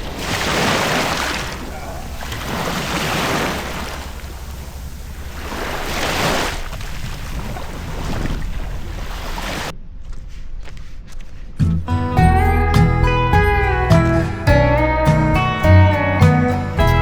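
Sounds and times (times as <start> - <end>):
surf breaking on beach: 0.0 - 9.7.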